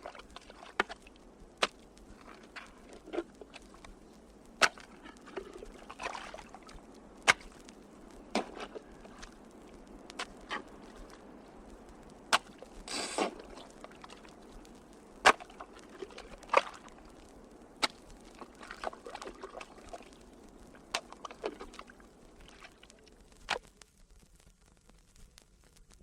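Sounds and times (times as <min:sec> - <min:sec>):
sharp cracks and knocks: 0:00.0 - 0:23.9
faint scraping and clicking: 0:00.0 - 0:26.0.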